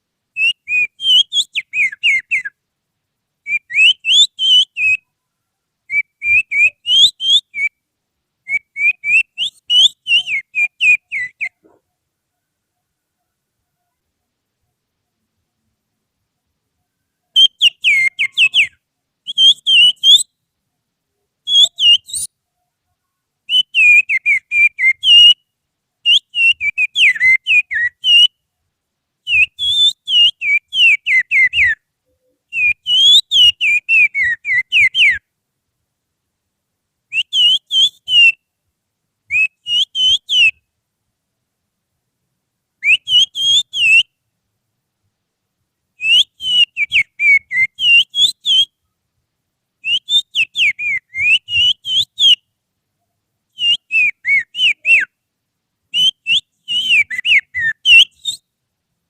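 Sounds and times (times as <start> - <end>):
finger whistling birdsong: 0.4 - 2.6, 3.5 - 5.2, 5.9 - 7.8, 8.5 - 11.8, 17.3 - 20.4, 21.5 - 22.3, 23.5 - 25.4, 26.1 - 28.3, 29.3 - 31.8, 32.5 - 35.2, 37.1 - 38.4, 39.3 - 40.6, 42.8 - 44.1, 46.0 - 48.7, 49.8 - 52.4, 53.5 - 55.1, 55.9 - 58.5.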